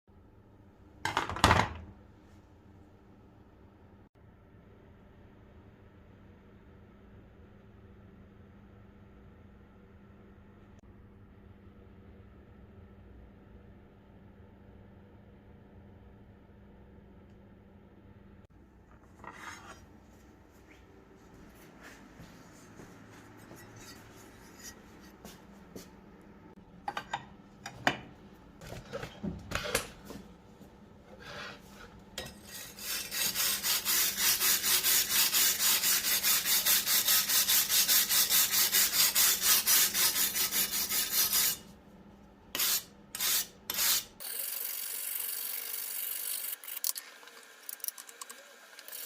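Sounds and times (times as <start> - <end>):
knocks and scrapes: 18.8 - 20.8, 21.8 - 25.9
wire brush scrubbing metal: 31.2 - 41.7.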